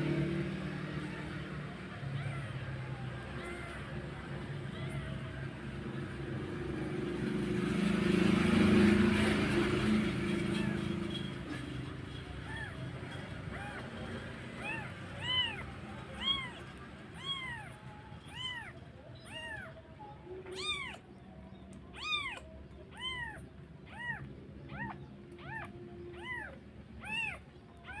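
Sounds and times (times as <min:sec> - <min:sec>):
cat meowing: 0:01.0 - 0:06.0, 0:10.4 - 0:11.2, 0:12.4 - 0:28.0.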